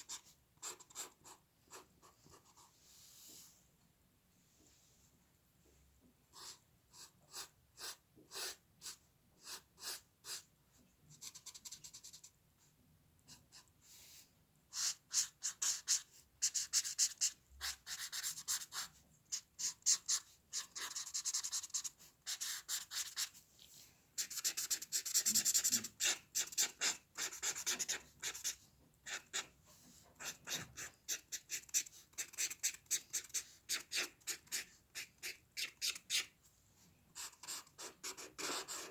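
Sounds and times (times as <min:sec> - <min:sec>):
drawing tool scratching on paper: 0:14.8 - 0:23.3, 0:24.2 - 0:36.3, 0:37.2 - 0:38.9.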